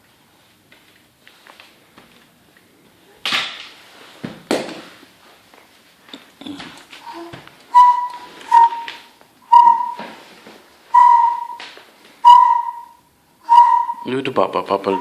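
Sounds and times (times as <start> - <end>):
toy whistle toots: 7.1 - 10.2, 10.9 - 15.0.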